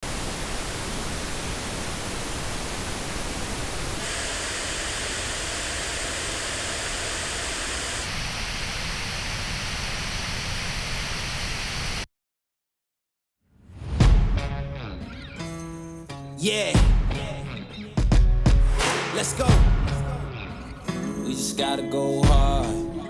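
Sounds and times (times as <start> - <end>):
pink noise test signal: 0.0 - 12.1.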